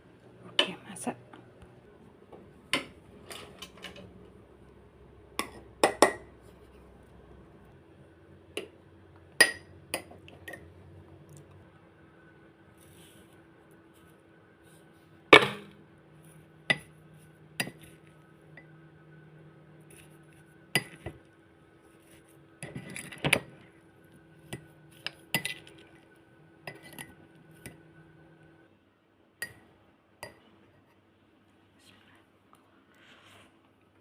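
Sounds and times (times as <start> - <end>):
dishes and utensils clinking: 2.7 - 4.1.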